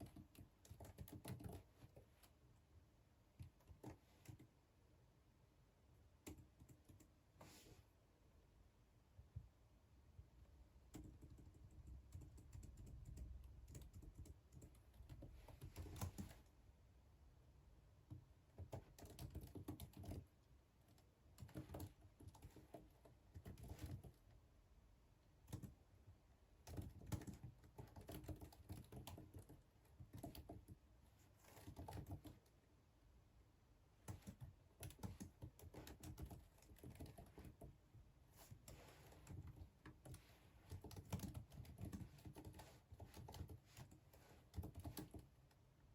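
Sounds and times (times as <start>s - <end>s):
typing on computer keyboard: 0.0s - 2.4s, 3.4s - 4.6s, 6.2s - 7.2s, 10.9s - 16.5s, 18.1s - 24.2s, 25.4s - 25.8s, 26.6s - 30.8s, 31.4s - 32.5s, 34.0s - 37.8s, 38.4s - 45.4s.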